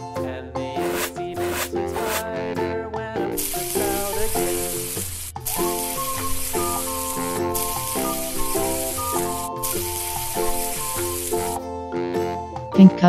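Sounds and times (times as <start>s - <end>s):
steady hiss: 3.4s - 11.6s.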